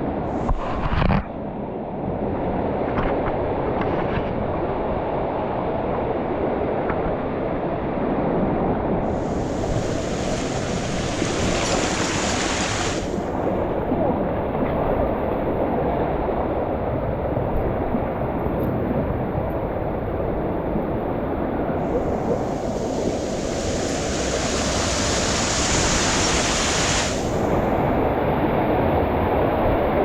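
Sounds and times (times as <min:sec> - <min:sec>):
hissing water splash: 0:09.1 - 0:13.4, 0:21.8 - 0:27.8
waterfall roaring: 0:09.1 - 0:13.4, 0:21.8 - 0:28.2.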